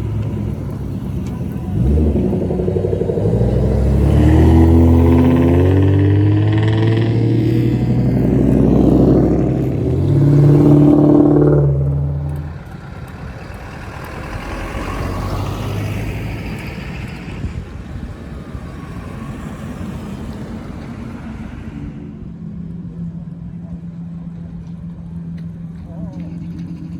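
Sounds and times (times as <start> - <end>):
car exhaust roaring: 0.0 - 26.9
rough engine rumble: 0.0 - 26.9.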